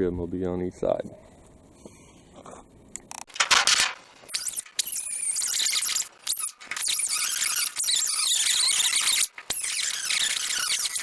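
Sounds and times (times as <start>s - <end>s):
angle grinder cutting sheet steel: 4.2s - 11.0s.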